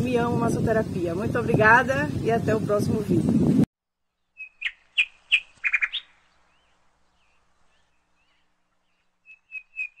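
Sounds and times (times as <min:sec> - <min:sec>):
birds chirping: 0:04.1 - 0:10.0.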